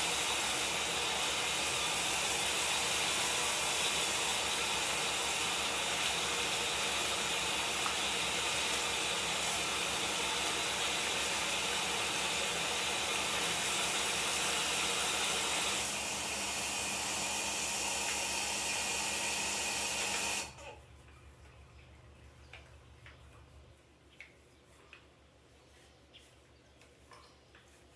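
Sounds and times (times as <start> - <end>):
water running: 0.0 - 27.9.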